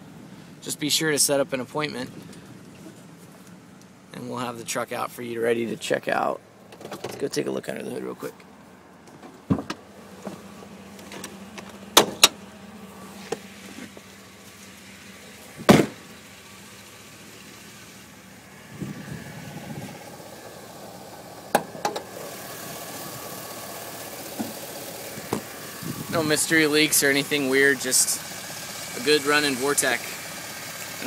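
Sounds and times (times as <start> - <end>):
engine idling: 8.2 - 31.0
truck hood latch clicks and clunks: 9.1 - 9.8, 11.0 - 12.4, 15.6 - 16.0, 21.5 - 22.1.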